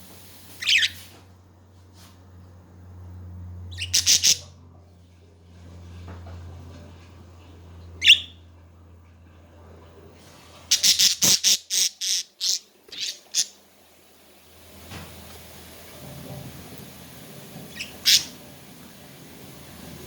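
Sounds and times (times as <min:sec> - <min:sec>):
budgerigars chirping and squawking: 0:00.6 - 0:01.0, 0:03.7 - 0:04.5, 0:08.0 - 0:08.3, 0:10.7 - 0:13.6, 0:17.7 - 0:18.4.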